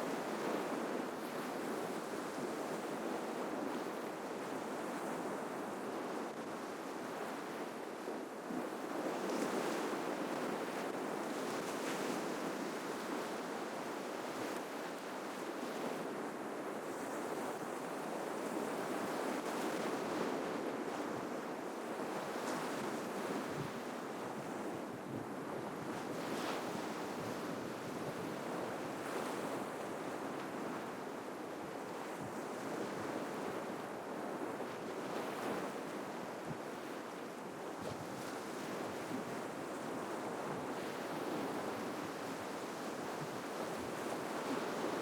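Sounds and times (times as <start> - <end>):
waves breaking on shore: 37.7 - 45.0.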